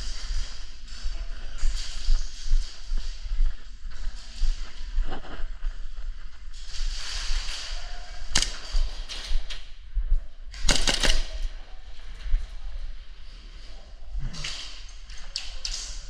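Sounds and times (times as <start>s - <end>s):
airsoft gun shots: 8.4s - 9.0s, 10.6s - 11.6s.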